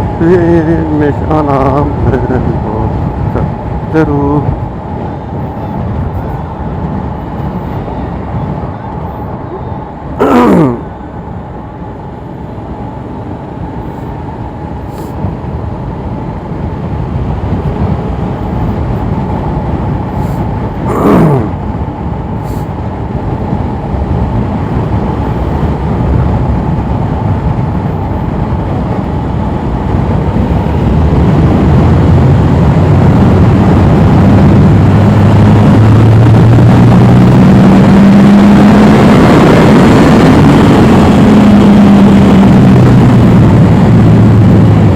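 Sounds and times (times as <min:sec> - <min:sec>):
wind noise: 0:00.0 - 0:44.9.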